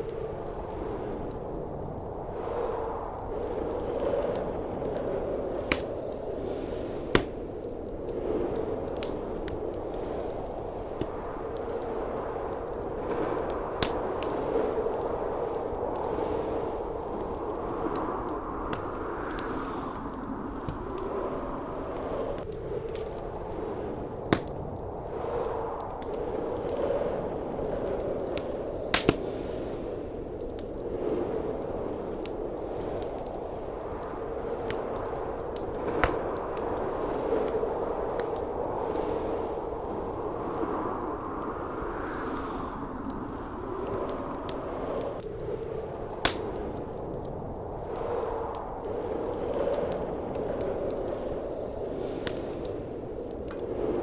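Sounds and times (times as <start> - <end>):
blizzard wind rushing: 0.0 - 54.0
wood fire crackling: 0.0 - 54.0
sharp fire pops: 3.4 - 21.1, 21.9 - 40.6, 42.2 - 48.9.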